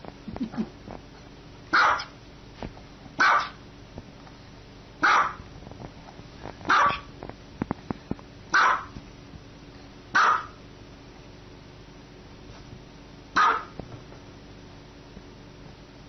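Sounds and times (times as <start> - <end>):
small dog barking: 1.7 - 2.2, 3.2 - 3.6, 5.0 - 5.4, 6.7 - 7.1, 8.5 - 8.9, 10.1 - 10.6, 13.4 - 13.8.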